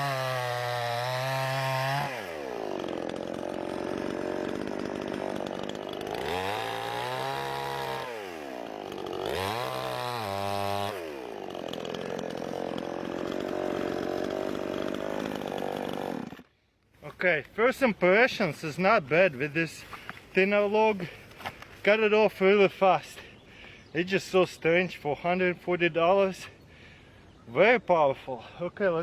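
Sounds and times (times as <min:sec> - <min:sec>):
chainsaw revving and cutting log: 0:00.0 - 0:16.5.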